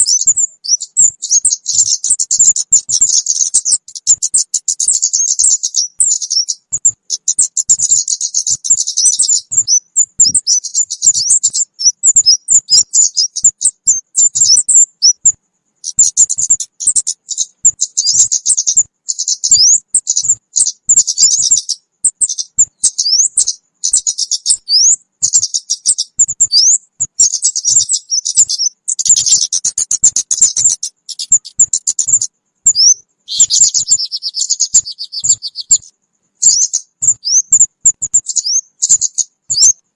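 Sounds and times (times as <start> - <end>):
high-pitched bird chirps: 0.0 - 39.9.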